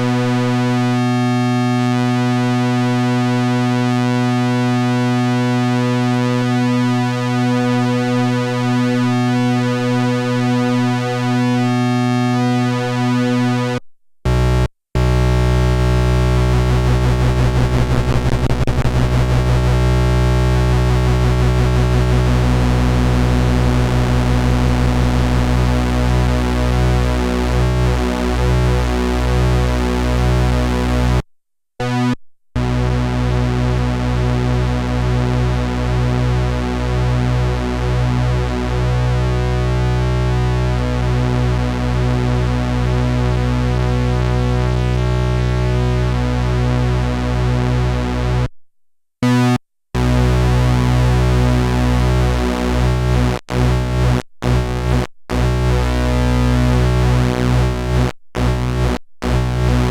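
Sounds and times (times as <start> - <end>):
steady synth bass: 0.0 - 31.2, 31.8 - 48.5, 49.2 - 59.9
synthesizer playing held notes: 11.7 - 28.5.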